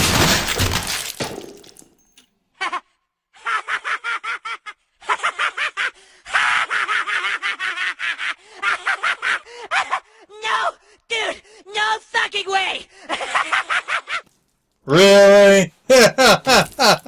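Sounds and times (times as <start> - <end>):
person gasping rapidly: 9.4 - 11.7.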